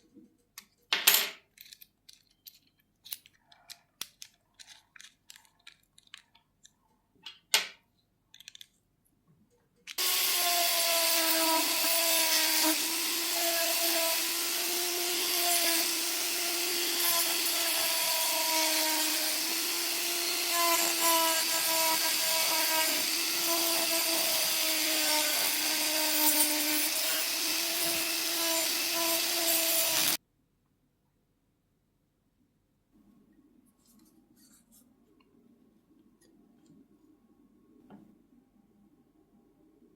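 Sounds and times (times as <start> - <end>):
electric power tool whining: 10.0 - 30.2.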